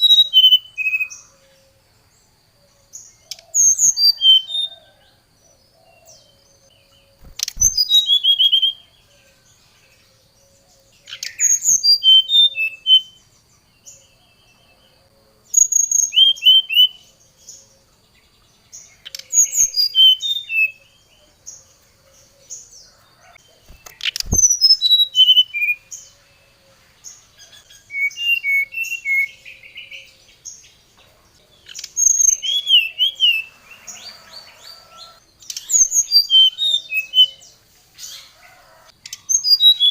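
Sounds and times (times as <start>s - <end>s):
bird singing high whistled notes: 0.0s - 1.4s, 3.2s - 5.0s, 6.0s - 9.3s, 11.0s - 13.3s, 15.5s - 17.1s, 19.1s - 21.2s, 23.6s - 26.0s, 27.6s - 30.1s, 31.7s - 37.5s, 39.3s - 39.9s.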